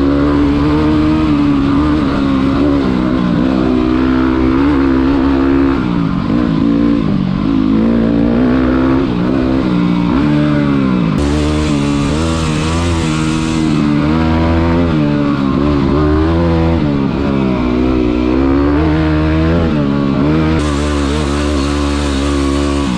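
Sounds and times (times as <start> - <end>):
motorcycle engine revving: 0.0 - 22.9
rushing noise: 11.2 - 15.7, 20.6 - 22.9.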